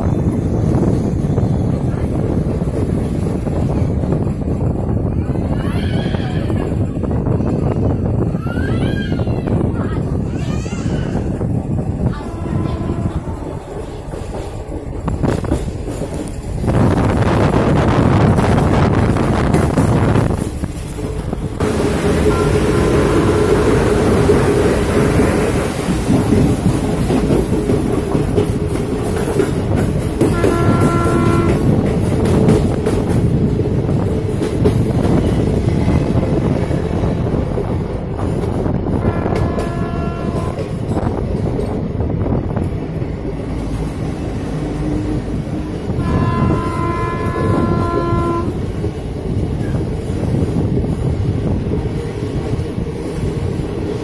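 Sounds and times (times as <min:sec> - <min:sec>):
train rumbling: 0:00.0 - 0:54.0
train horn blast: 0:12.2 - 0:13.7, 0:21.6 - 0:24.2, 0:30.2 - 0:31.8, 0:39.0 - 0:40.8, 0:45.9 - 0:48.6.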